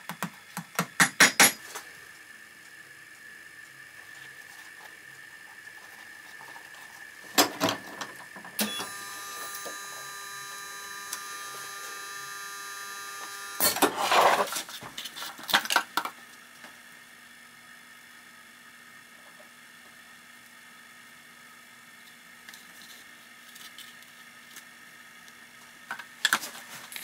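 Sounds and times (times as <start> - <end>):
machine humming: 1.7 - 14.5.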